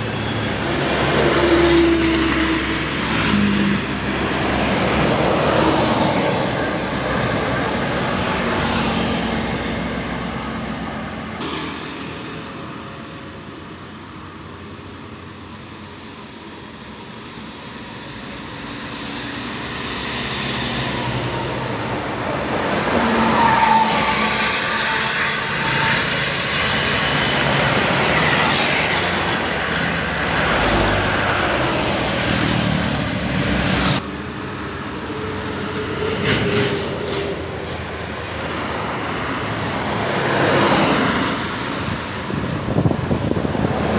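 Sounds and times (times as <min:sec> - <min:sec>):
bus passing close: 0:00.0 - 0:43.9
road traffic: 0:00.0 - 0:43.9.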